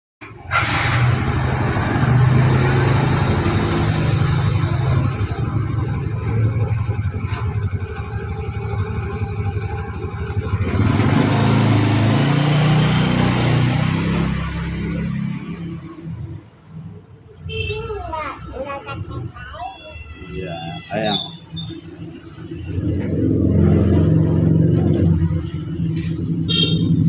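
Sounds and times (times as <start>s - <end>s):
engine running steadily: 0.6s - 12.3s.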